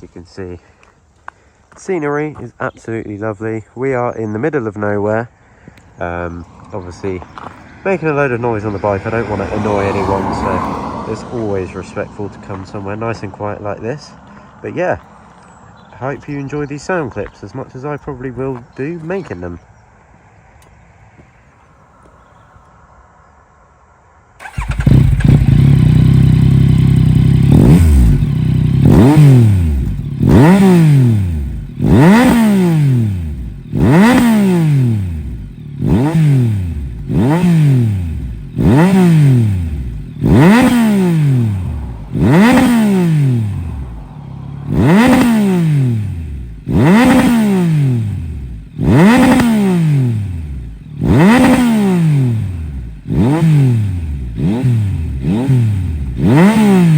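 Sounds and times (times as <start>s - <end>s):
motorcycle engine revving: 6.0s - 19.6s, 24.4s - 56.9s.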